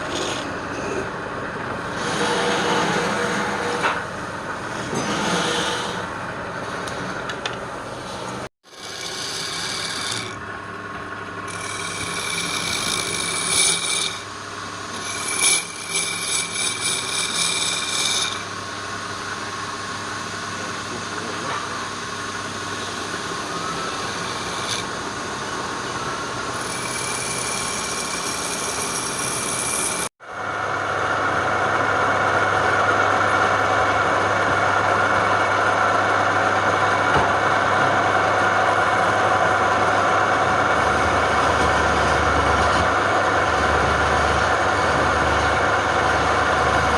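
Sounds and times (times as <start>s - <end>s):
lathe motor running: 0.0s - 46.9s
tool rasping on spinning wood: 1.8s - 7.3s, 7.9s - 10.5s, 11.4s - 19.2s, 22.7s - 30.1s.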